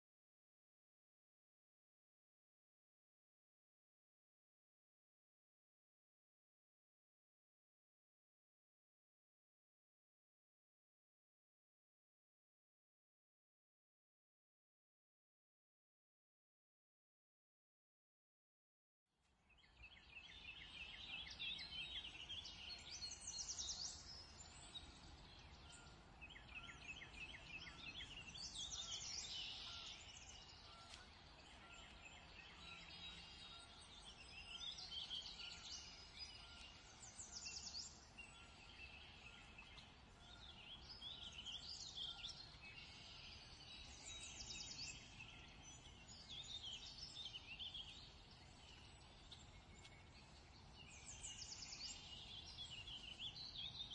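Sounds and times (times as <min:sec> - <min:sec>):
songbirds chirping and trilling: 0:19.3 - 0:53.9.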